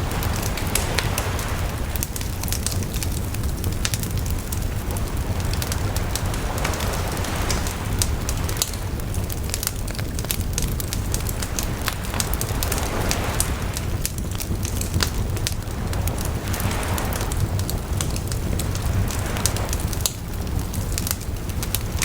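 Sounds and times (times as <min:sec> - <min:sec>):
campfire crackling: 0:00.0 - 0:22.0
sea waves washing in: 0:00.0 - 0:22.0.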